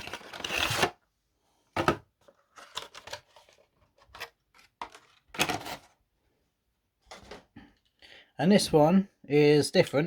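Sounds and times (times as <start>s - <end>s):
cardboard and plastic rustling: 1.8s - 6.0s.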